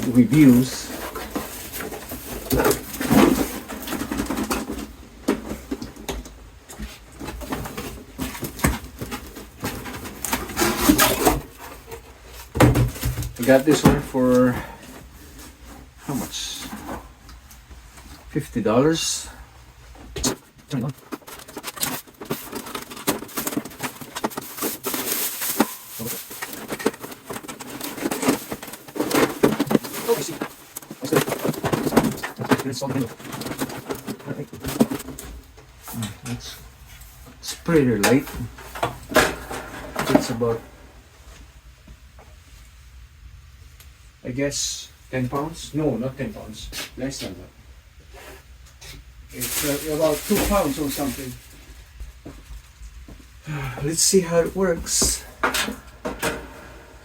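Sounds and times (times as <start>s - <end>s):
packaging rustling and crackling: 0.0s - 15.8s, 20.5s - 37.2s, 49.3s - 53.0s
objects knocking and rubbing: 0.0s - 18.3s, 19.9s - 42.4s.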